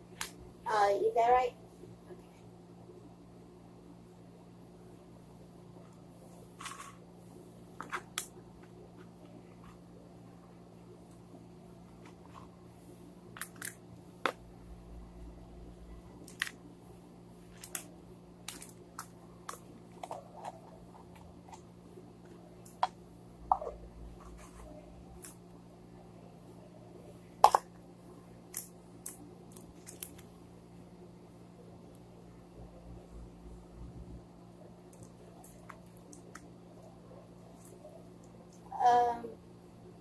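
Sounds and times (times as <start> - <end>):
steady low hum: 0.0 - 40.0
small objects clicking and tapping: 17.5 - 21.6.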